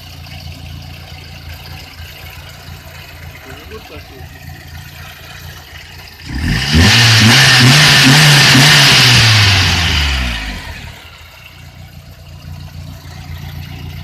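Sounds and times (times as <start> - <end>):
car engine revving and idling: 0.0 - 14.0.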